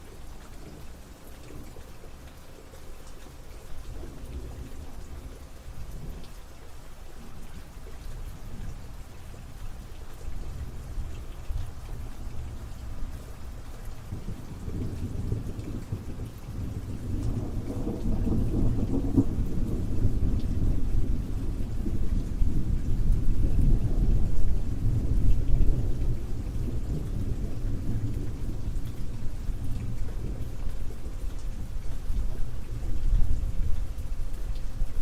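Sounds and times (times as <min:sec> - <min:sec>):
rain falling: 0:00.0 - 0:35.0
low roll of thunder: 0:08.3 - 0:35.0.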